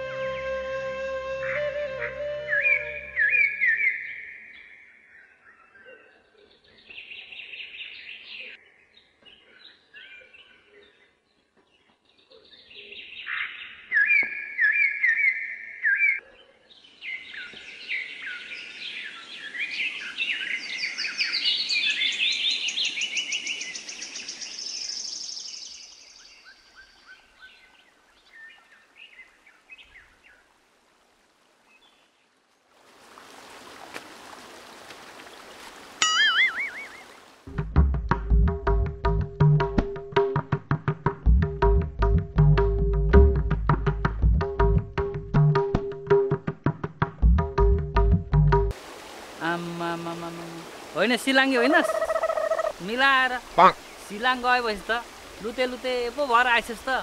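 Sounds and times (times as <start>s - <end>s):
birds chirping and singing: 0.0s - 11.1s, 51.7s - 54.6s.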